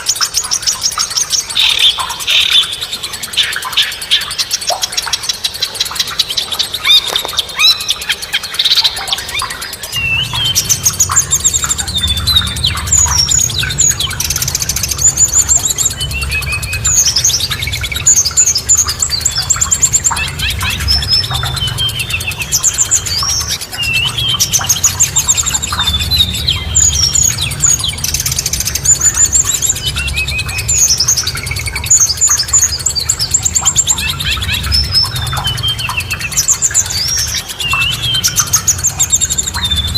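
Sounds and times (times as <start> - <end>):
songbirds chirping and singing: 0.0 - 39.9
low steady rumble: 8.6 - 39.9.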